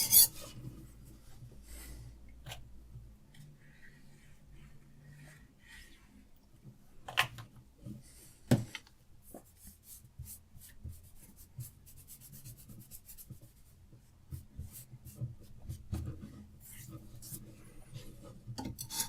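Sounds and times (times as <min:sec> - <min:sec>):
sharpening stone scraping knife edge: 0:00.0 - 0:00.4, 0:18.8 - 0:19.0.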